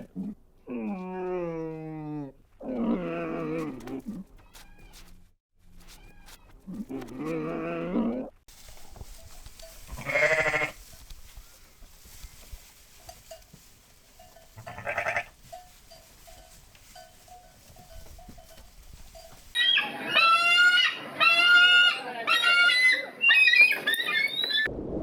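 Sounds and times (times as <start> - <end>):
farm animal bleating: 0.0 - 5.1, 5.8 - 8.3, 9.6 - 11.0, 14.2 - 23.0.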